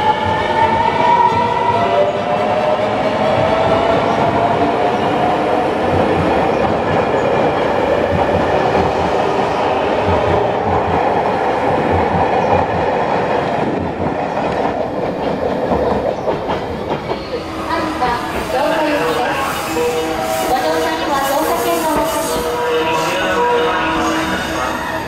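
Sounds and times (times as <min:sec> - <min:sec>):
passenger train rolling past: 0:00.0 - 0:25.0.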